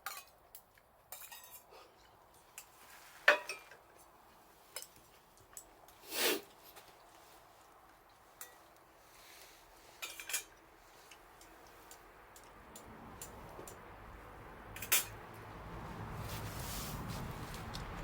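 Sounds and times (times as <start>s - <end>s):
cookware and utensils clinking: 0.0s - 4.1s, 10.0s - 11.7s, 14.8s - 15.2s
rustle: 0.0s - 18.0s.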